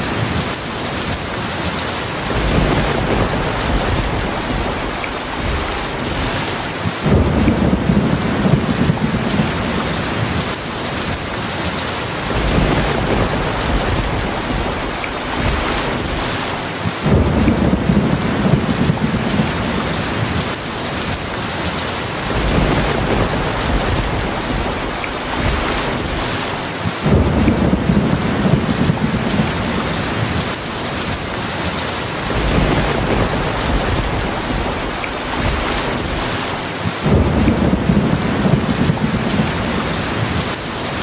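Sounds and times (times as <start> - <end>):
heavy rain: 0.0 - 41.0
low thunder rumbling: 2.2 - 21.3, 22.2 - 40.7.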